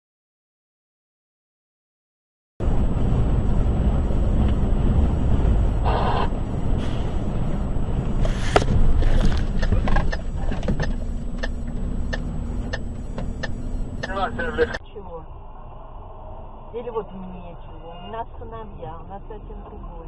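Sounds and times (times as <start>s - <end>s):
engine and road rumble: 2.6s - 20.0s
sharp clicks and knocks: 8.0s - 14.2s.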